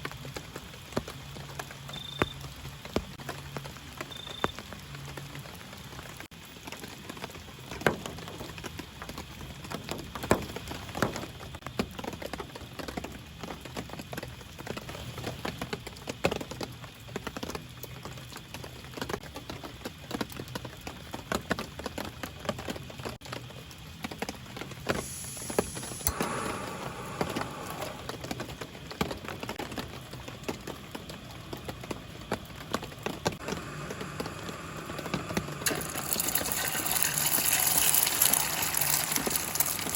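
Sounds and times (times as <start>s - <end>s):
rain drops tapping on a surface: 0.0s - 39.9s
high hiss: 24.8s - 28.6s, 33.4s - 39.9s.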